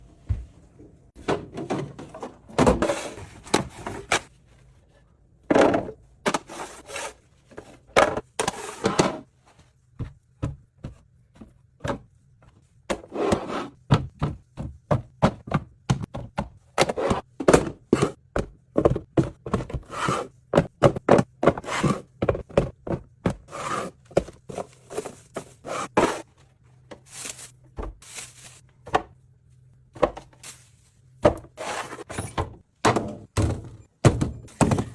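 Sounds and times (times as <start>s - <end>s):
containers thunking on shelves: 1.2s - 4.3s, 30.0s - 30.4s, 31.2s - 34.9s
items sliding on shelves: 1.2s - 5.0s, 5.6s - 9.7s, 13.0s - 13.8s, 19.7s - 20.4s, 21.4s - 22.2s, 23.4s - 28.7s, 30.2s - 32.6s.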